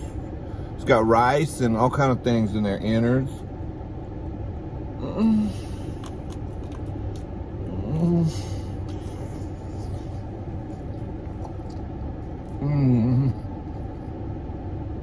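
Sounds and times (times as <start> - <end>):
man humming mm: 5.0 - 5.8, 7.6 - 8.8, 12.5 - 13.6
man chewing sausage: 5.6 - 14.2.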